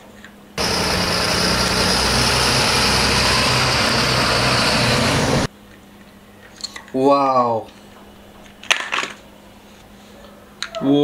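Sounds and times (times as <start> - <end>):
vehicle engine idling: 0.6 - 5.5.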